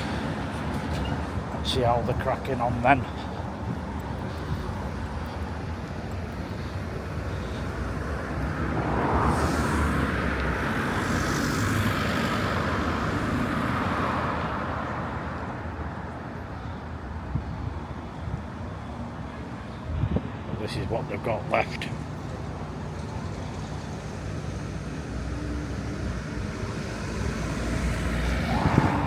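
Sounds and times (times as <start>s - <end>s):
vehicle passing: 0.0s - 14.8s, 24.1s - 29.0s
street background noise: 0.0s - 29.0s.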